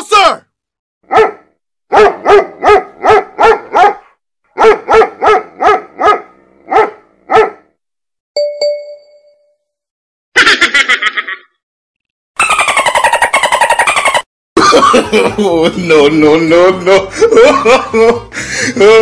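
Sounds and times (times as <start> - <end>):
dog barking: 1.0 - 7.7
bell-like ding: 8.4 - 9.6.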